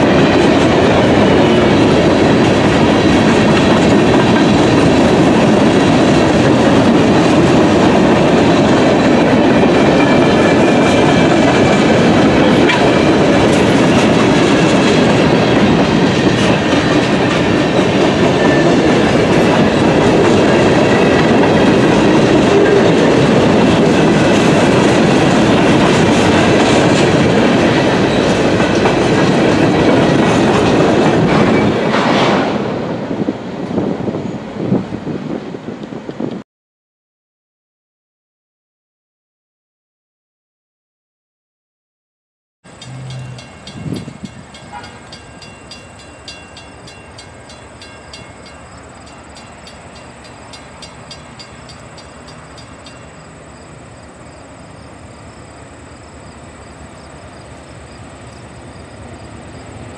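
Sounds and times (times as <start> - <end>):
train wheels rolling on rail: 0.0 - 36.4, 42.7 - 59.9.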